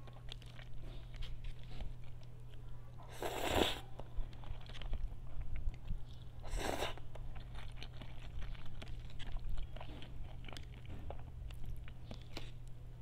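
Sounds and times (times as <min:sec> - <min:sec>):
person chewing noodles: 0:00.0 - 0:12.8
loud slurp: 0:03.1 - 0:03.8.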